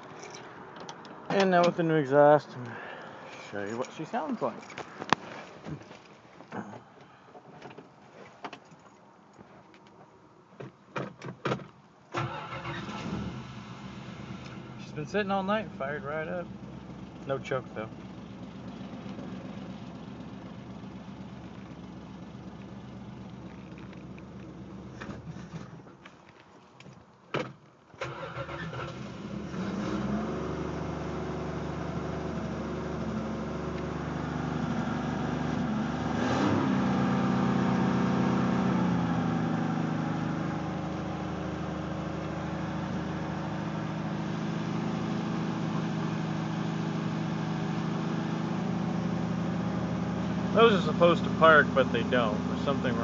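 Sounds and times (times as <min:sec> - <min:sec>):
car engine starting and idling: 0:12.1 - 0:26.0, 0:27.9 - 0:53.0.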